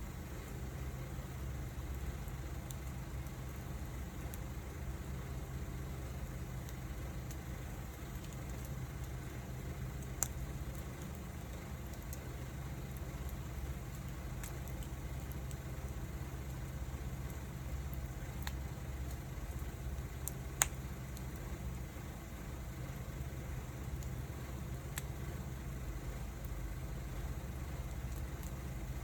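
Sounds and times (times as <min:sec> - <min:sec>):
low steady rumble: 0:00.0 - 0:29.0
wood fire crackling and popping: 0:00.1 - 0:29.0.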